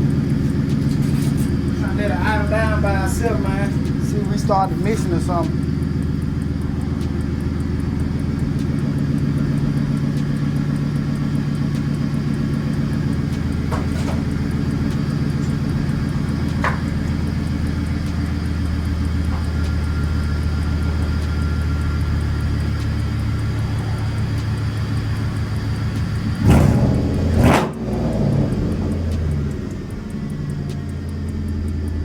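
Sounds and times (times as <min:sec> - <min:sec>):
car engine idling: 0:00.0 - 0:32.0
faint clicks: 0:00.0 - 0:32.0.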